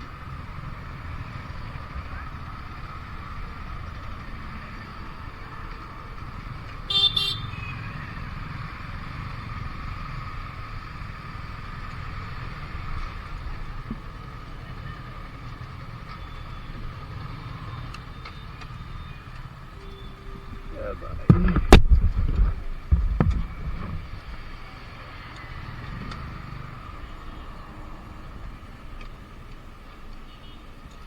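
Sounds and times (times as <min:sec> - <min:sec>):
motorcycle road and wind noise: 0:00.0 - 0:31.0
high vehicle horn toot: 0:06.9 - 0:08.0, 0:19.8 - 0:20.8.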